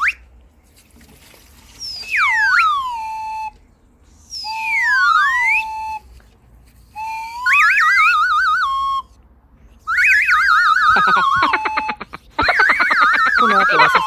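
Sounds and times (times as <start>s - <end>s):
whistle-like sliding tones: 1.8s - 9.2s, 9.8s - 14.0s.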